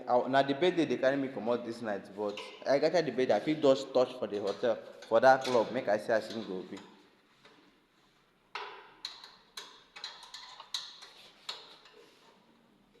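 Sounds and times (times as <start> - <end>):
sharp metallic clicks and taps: 8.6 - 12.0.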